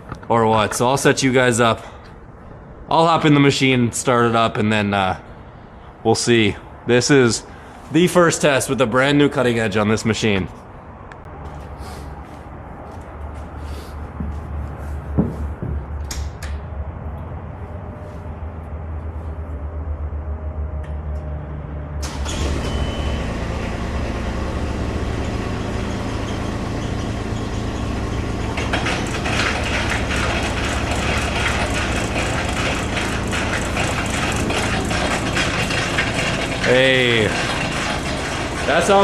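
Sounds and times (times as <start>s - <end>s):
loader engine running: 11.1s - 39.0s
snowblower augers rattling: 22.0s - 39.0s.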